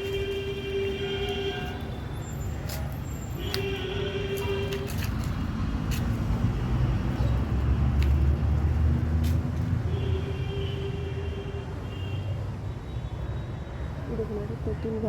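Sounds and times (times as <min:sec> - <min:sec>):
vehicle engine rumble passing: 0:04.3 - 0:10.0.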